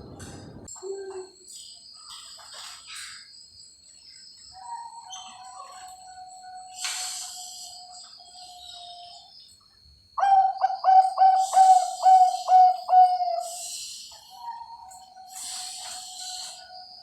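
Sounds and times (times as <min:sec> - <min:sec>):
high chirping of birds: 0:00.0 - 0:17.0
dove cooing: 0:10.2 - 0:13.7.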